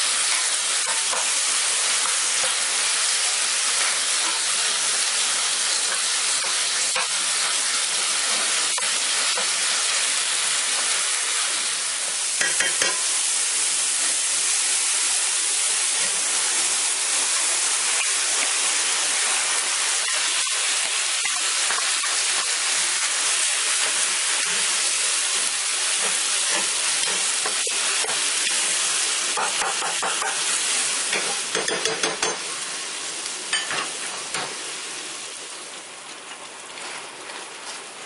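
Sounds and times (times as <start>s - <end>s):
meat sizzling in a pan: 0.0s - 38.0s
spatula clattering against pan: 31.1s - 32.4s.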